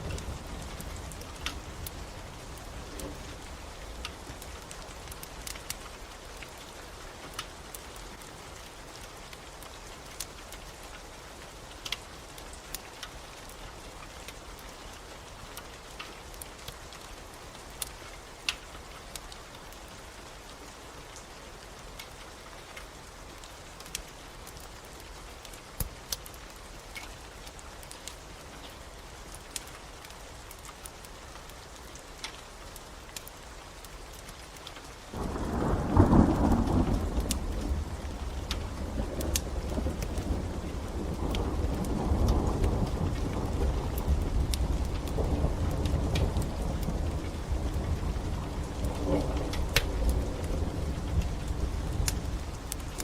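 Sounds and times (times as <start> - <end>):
fireplace fire crackling: 0.0 - 53.0
steady rain: 0.0 - 53.0
thunder rumble: 35.2 - 53.0.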